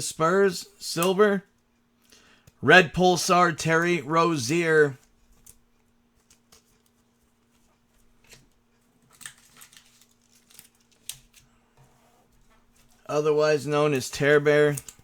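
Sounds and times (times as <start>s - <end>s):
trading cards rustling and clicking: 3.6s - 11.6s, 13.8s - 15.0s.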